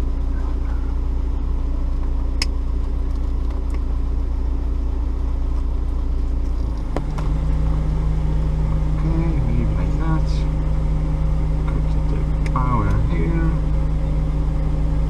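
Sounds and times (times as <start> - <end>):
engine idling: 0.0 - 15.0
second low hum: 0.0 - 15.0
sharp click: 2.4 - 2.6.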